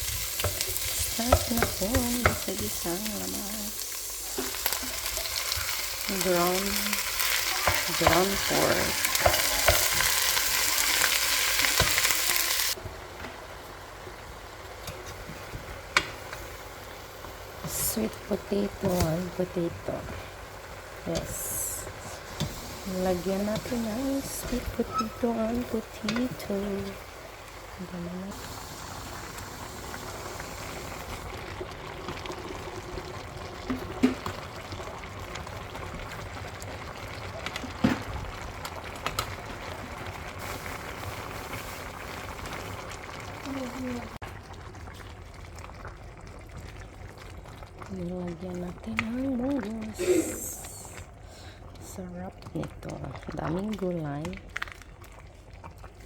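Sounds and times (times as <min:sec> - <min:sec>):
meat sizzling in a pan: 0:00.0 - 0:12.8, 0:28.3 - 0:44.2
pot of liquid hissing: 0:00.0 - 0:48.2, 0:49.8 - 0:52.5
stirring knocks: 0:00.4 - 0:02.7, 0:07.4 - 0:10.2, 0:21.2 - 0:27.0.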